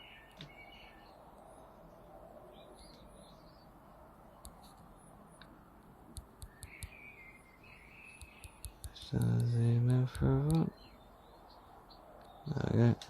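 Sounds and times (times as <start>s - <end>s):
small sharp clicks: 6.1s - 7.0s, 8.1s - 10.8s.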